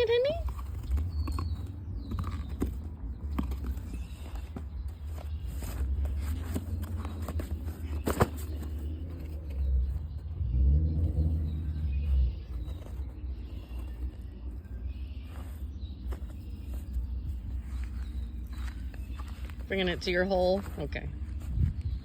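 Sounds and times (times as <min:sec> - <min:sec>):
puppy chewing cardboard box: 0:00.1 - 0:10.1.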